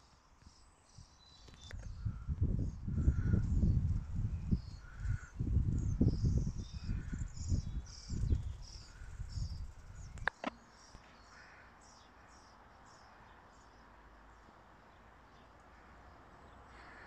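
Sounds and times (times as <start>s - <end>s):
small bird chirping: 0.4s - 11.6s
low microphone rumble: 1.9s - 10.2s.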